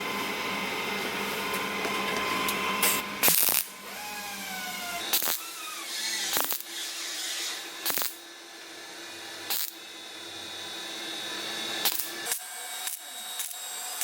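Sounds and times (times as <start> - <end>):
welding crackling bursts: 2.8 - 3.7, 5.1 - 5.6, 6.2 - 6.8, 7.8 - 8.2, 9.5 - 9.8, 11.8 - 14.0.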